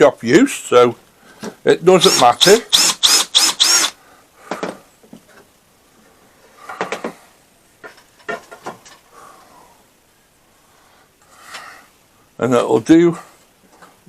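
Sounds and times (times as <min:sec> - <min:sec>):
person speaking: 0:01.6 - 0:02.8.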